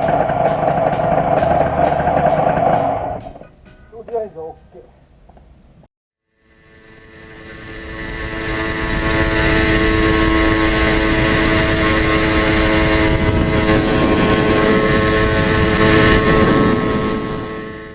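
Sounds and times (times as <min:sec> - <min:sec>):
two-stroke engine running: 0:00.0 - 0:03.5.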